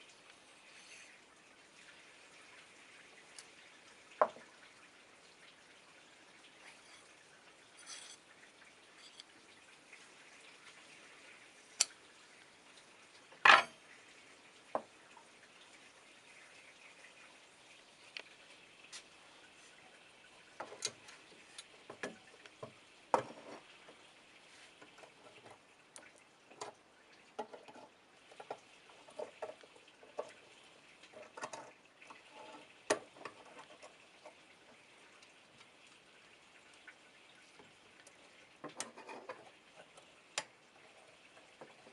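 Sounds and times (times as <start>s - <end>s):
metal scrape: 7.7s - 8.2s.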